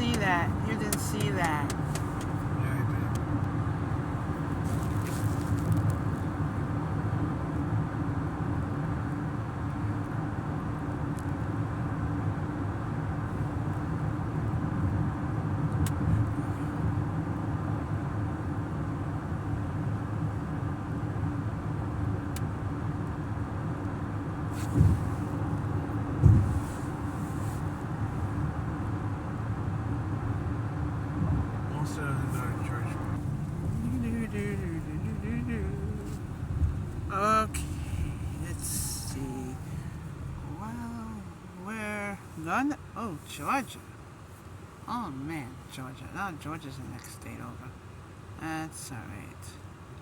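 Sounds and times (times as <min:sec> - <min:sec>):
car road noise: 0:00.0 - 0:50.0
short thumps: 0:24.6 - 0:25.2, 0:26.1 - 0:27.0.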